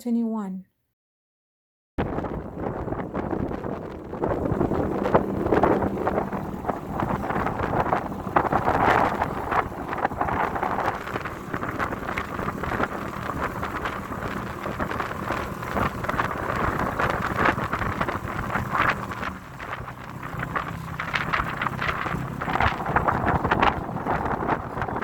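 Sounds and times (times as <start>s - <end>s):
motorboat engine drone: 2.0s - 25.0s
wind buffeting microphone: 2.0s - 25.0s.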